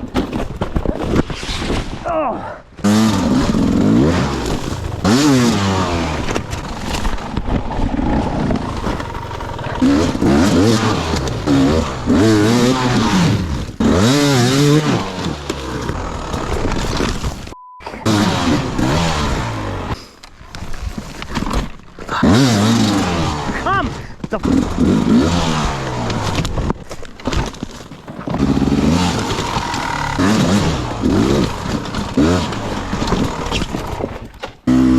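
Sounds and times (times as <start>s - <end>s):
dirt bike engine revving: 2.8s - 20.0s, 22.2s - 23.7s, 24.4s - 26.4s, 28.2s - 34.0s, 34.7s - 34.9s.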